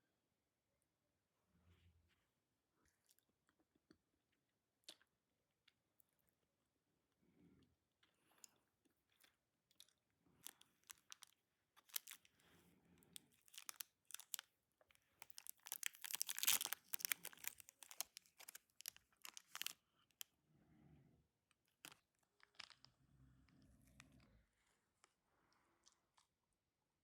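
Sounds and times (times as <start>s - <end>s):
close crackling and crunching: 9.8s - 12.3s, 13.2s - 14.5s, 15.1s - 19.8s, 21.8s - 22.9s.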